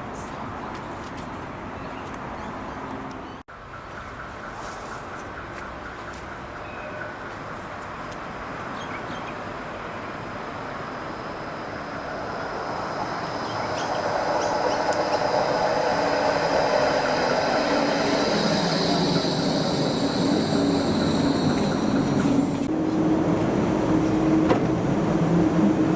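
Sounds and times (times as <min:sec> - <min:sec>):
tram running on rails: 0:00.0 - 0:25.9
high whine: 0:10.2 - 0:25.9.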